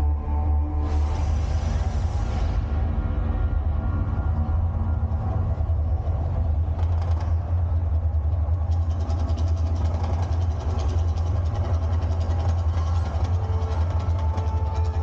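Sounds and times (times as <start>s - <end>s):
deep steady rumble: 0.0s - 15.0s
fast crackling rattle: 6.0s - 15.0s.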